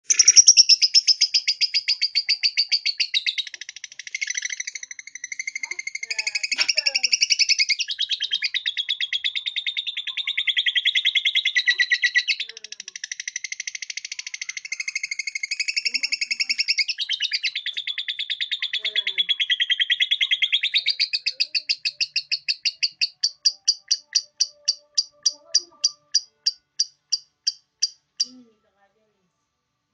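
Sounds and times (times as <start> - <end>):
lovebird chattering song: 0.0 - 28.4.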